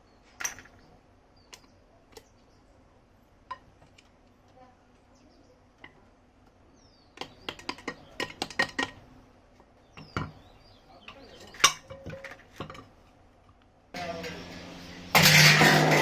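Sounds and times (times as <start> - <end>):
small metal parts clinking: 0.4 - 0.8.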